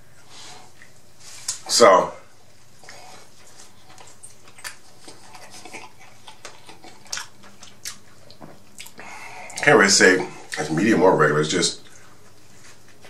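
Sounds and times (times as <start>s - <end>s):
person chewing crunchy food: 2.8s - 9.2s.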